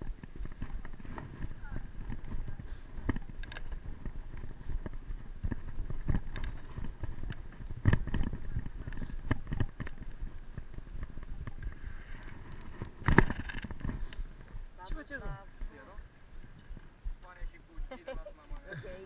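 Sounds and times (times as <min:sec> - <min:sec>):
bicycle knocks and rattles: 0:00.0 - 0:11.7, 0:12.3 - 0:14.5.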